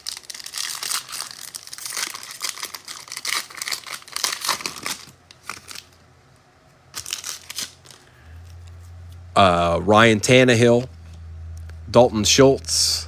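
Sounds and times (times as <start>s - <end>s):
wrapper torn open and crinkled: 0.0s - 6.0s, 6.9s - 8.6s.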